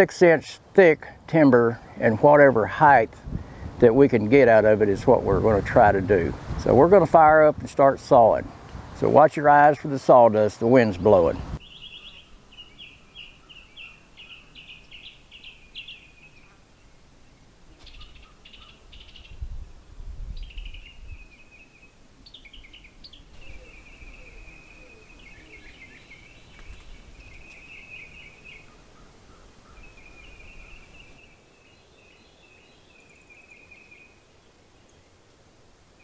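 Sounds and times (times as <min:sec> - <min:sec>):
wind rumbling on microphone: 0:03.1 - 0:09.2, 0:10.9 - 0:11.6, 0:17.8 - 0:21.5, 0:22.2 - 0:28.6
small birds chirping: 0:08.6 - 0:19.5, 0:20.3 - 0:35.3.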